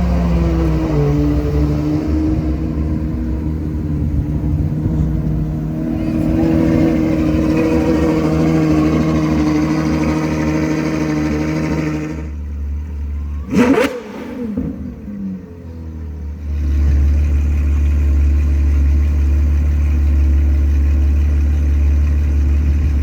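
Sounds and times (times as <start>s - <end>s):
sports car engine running: 0.0s - 23.0s
engine rev blip: 5.7s - 15.6s.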